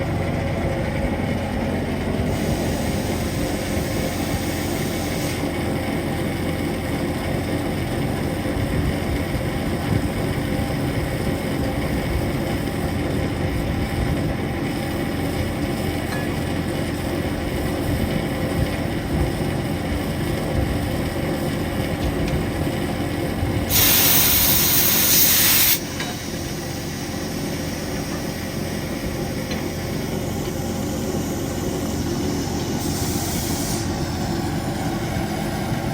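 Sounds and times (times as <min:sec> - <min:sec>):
steam train rumbling: 0:00.0 - 0:35.9
steam hiss: 0:02.2 - 0:06.6, 0:23.6 - 0:35.9.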